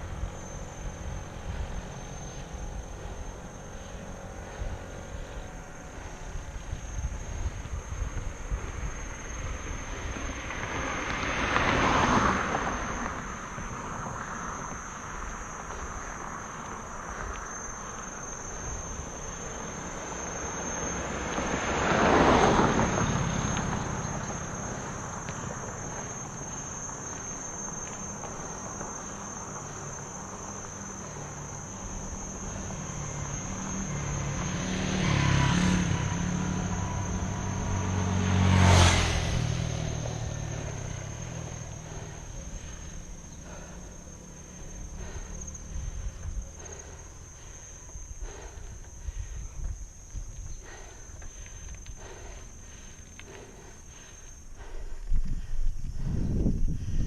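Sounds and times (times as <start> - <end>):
high-pitched insect drone: 0.0 - 57.0
motor vehicles passing by: 0.0 - 57.0.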